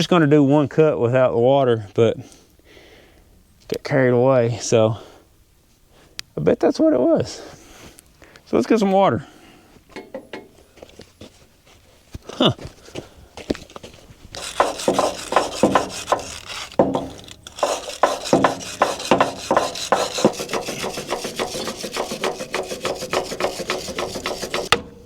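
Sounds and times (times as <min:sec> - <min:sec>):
hand scraping belt: 0:09.9 - 0:24.9.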